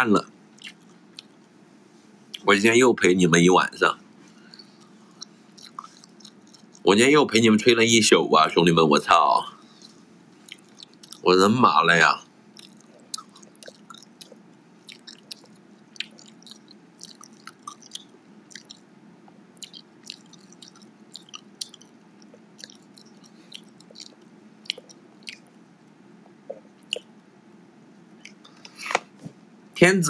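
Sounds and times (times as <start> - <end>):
low steady hum: 0.0 - 30.0
person chewing food: 0.6 - 1.5, 4.2 - 6.9, 9.6 - 11.3, 12.5 - 25.6, 26.2 - 27.2.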